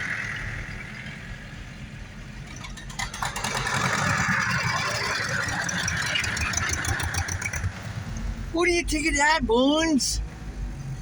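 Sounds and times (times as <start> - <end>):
tractor engine running: 0.0 - 10.2
rattling: 2.4 - 7.8.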